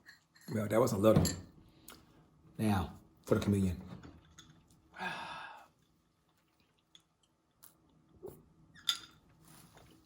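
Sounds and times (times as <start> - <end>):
person sighing: 5.0 - 5.7.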